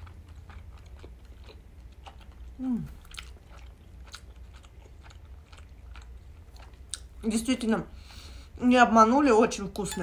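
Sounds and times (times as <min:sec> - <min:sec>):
wet chewing and lip smacks: 0:00.0 - 0:07.2
low steady hum: 0:00.0 - 0:10.0
person humming mmm: 0:02.6 - 0:03.0.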